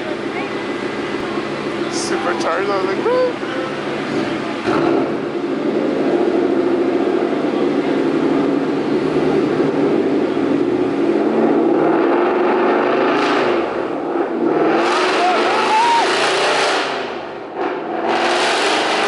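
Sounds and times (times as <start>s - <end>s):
car engine running under load: 0.0s - 19.0s.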